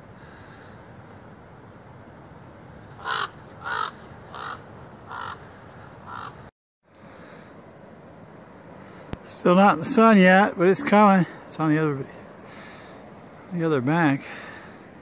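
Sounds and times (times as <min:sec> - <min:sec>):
crow cawing: 0:03.0 - 0:06.4.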